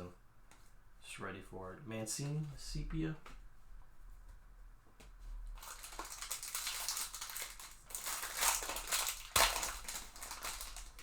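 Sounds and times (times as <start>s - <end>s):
foil wrapper crinkling: 5.6s - 11.0s.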